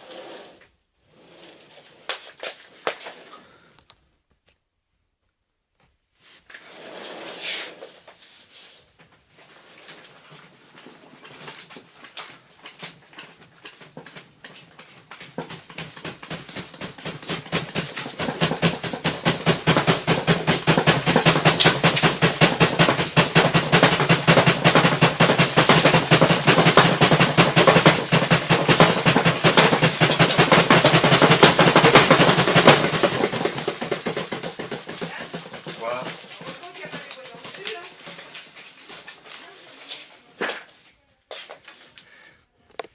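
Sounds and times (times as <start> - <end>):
rapid rattling clatter: 13.2 - 39.4.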